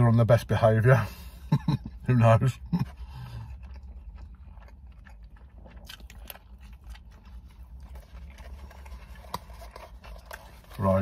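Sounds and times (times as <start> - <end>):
low steady hum: 0.0 - 11.0
person chewing food: 1.4 - 11.0.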